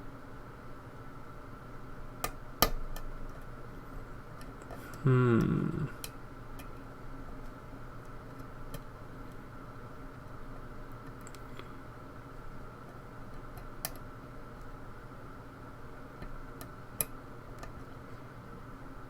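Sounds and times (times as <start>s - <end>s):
person humming: 4.8s - 6.1s.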